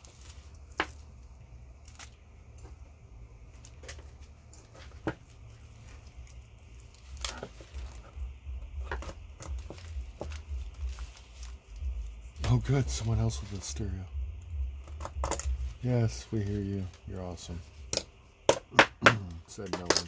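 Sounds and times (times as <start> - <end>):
low bass from car stereo: 3.0 - 19.7.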